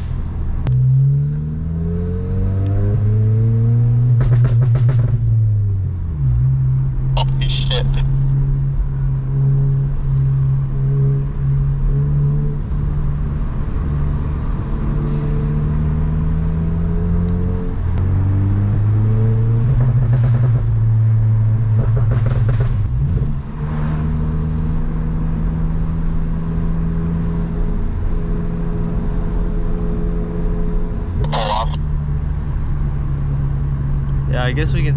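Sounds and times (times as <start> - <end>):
car engine accelerating: 0.6 - 34.9.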